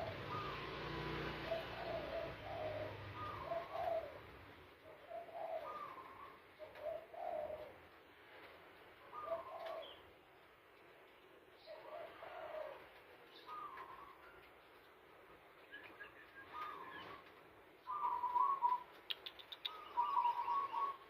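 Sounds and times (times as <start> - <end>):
bird calling in low phrases: 0.0 - 7.9, 9.1 - 10.1, 11.6 - 14.2, 15.7 - 21.0.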